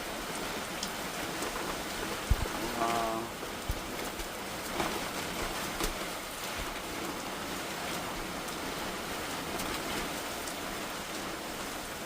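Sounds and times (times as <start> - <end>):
sharp raindrop impacts: 0.0 - 8.7
heavy rain pouring: 0.0 - 12.0.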